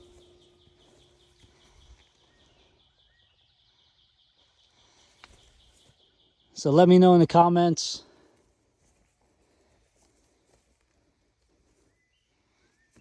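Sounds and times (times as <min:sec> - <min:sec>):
faint high chirping: 0:00.0 - 0:06.8.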